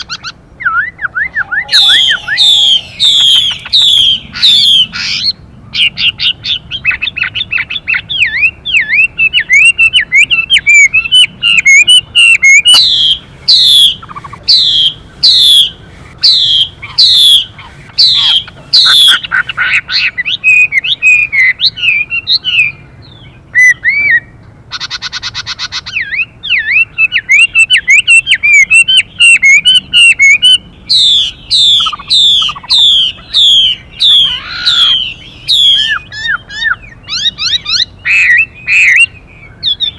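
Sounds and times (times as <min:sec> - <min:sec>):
bird singing warbled phrases: 0:00.0 - 0:39.9
harsh buzzy bird call: 0:00.0 - 0:39.9
bird falling whistled notes: 0:00.7 - 0:04.0.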